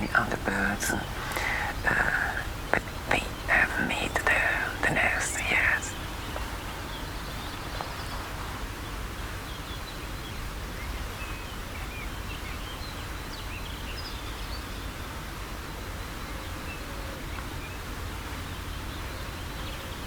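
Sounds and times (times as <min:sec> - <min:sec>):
low outdoor rumble: 0:00.0 - 0:12.4
small birds chirping: 0:00.0 - 0:20.0.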